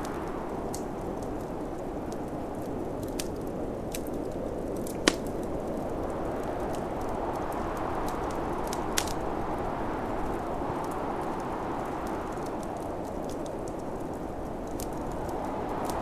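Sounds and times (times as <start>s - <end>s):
snowstorm wind rushing: 0.0s - 16.0s
wood fire crackling and popping: 0.0s - 16.0s.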